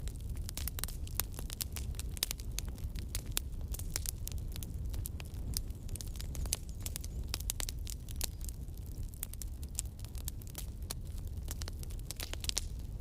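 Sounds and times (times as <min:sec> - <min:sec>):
burning wood crackling and popping: 0:00.0 - 0:13.0
campfire flames rumbling: 0:00.0 - 0:13.0.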